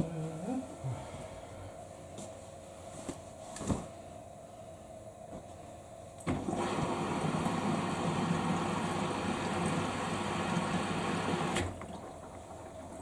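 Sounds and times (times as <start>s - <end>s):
washing machine motor running: 6.2s - 13.0s.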